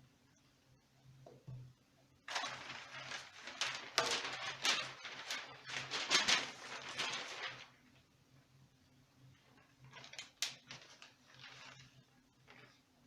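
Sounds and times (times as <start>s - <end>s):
paper crinkling: 2.3s - 8.0s, 9.4s - 12.8s.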